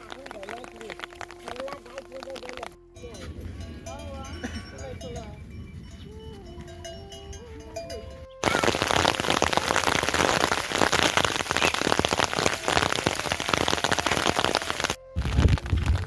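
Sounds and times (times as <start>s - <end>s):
heavy rain falling: 8.4s - 16.0s.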